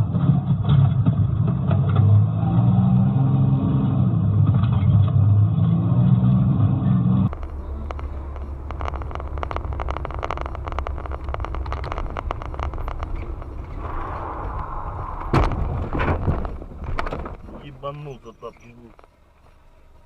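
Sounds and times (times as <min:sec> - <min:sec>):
car engine and road rumble: 0:00.0 - 0:20.0
faint irregular clicks: 0:07.3 - 0:14.7.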